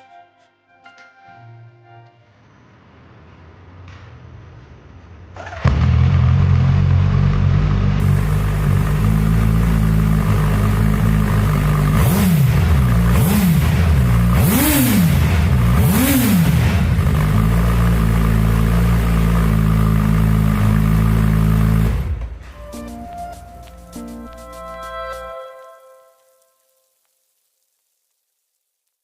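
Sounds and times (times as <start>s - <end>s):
motorcycle engine idling and revving: 3.9s - 22.4s.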